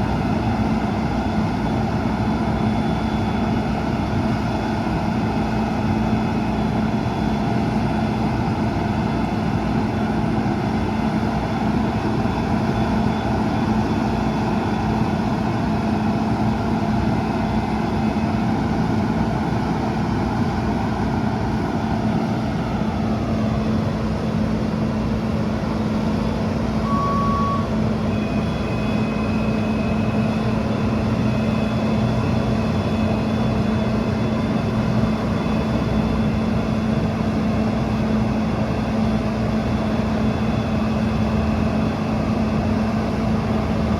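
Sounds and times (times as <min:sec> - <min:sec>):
diesel truck engine running: 0:00.0 - 0:43.9
short beep: 0:26.8 - 0:29.8.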